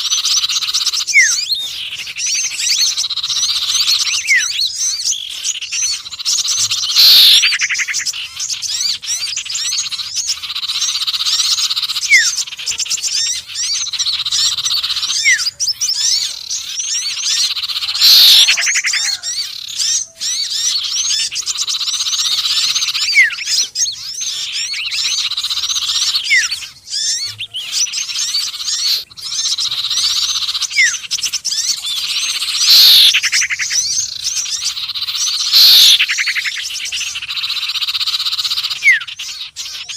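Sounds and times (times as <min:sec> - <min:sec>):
birds chirping and trilling: 0:00.0 - 0:39.9
loud falling bird call: 0:00.0 - 0:39.9.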